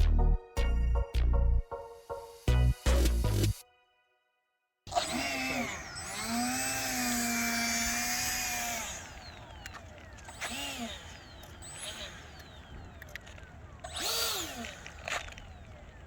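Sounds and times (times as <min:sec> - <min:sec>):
electric ducted-fan motor whining: 0:04.9 - 0:16.0.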